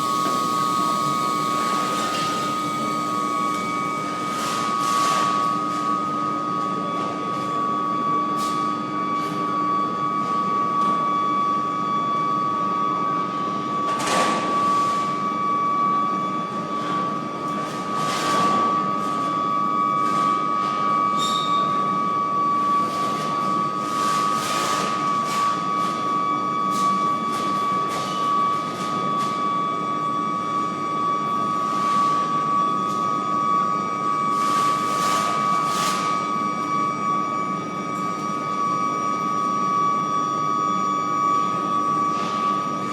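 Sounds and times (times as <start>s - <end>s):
noisy hum: 0.0s - 4.7s
high-pitched furnace whine: 0.0s - 42.9s.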